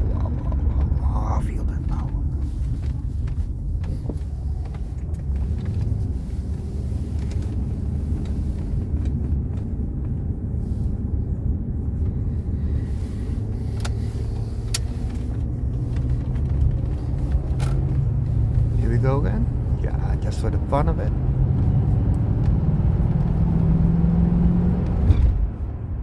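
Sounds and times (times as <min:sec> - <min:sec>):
car engine and road noise rumble: 0:00.0 - 0:26.0.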